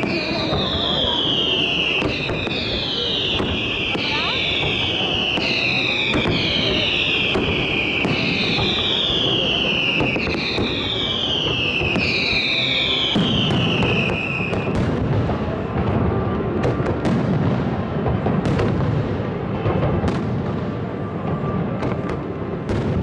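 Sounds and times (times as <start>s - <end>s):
whistling firework shells: 0.0s - 15.0s
firework sharp bangs: 0.0s - 23.0s
fireworks crackling: 0.0s - 23.0s.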